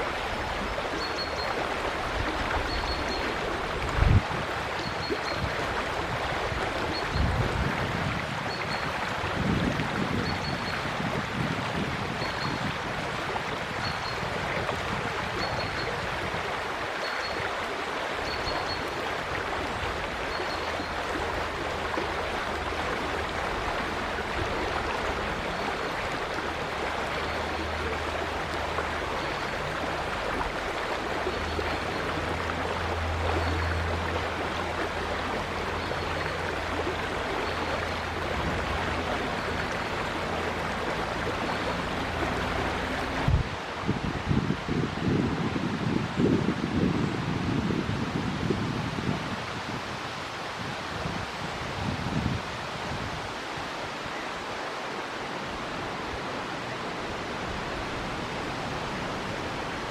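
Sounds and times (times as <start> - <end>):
river water rushing: 0.0 - 59.9
low rumble: 3.7 - 4.4.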